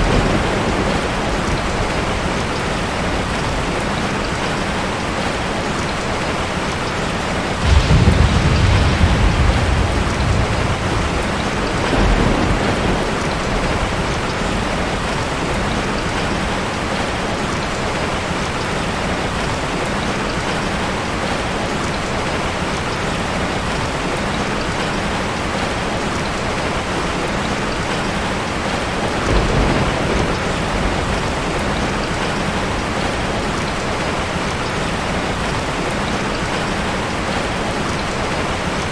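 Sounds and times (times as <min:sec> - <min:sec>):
low surf rumble: 0:07.6 - 0:14.8.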